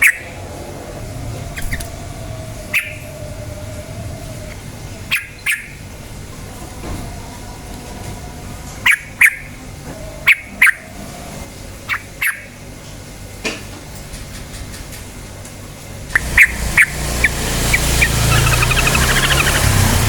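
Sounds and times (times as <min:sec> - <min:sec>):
bird giving sharp calls: 0:00.0 - 0:00.4, 0:02.7 - 0:03.2, 0:05.0 - 0:05.8, 0:16.2 - 0:20.0
low background hum: 0:00.0 - 0:20.0.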